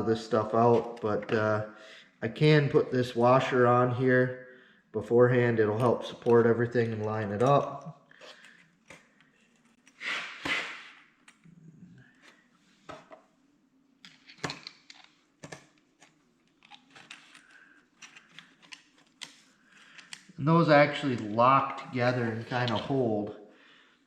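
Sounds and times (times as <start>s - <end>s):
small metal parts clicking and clinking: 14.0s - 20.3s.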